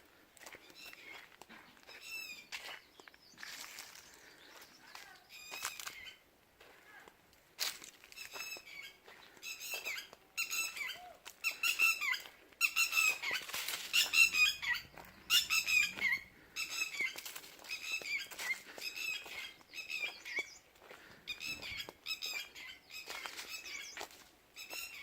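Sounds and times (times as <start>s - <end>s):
quail chirping: 8.2s - 25.0s.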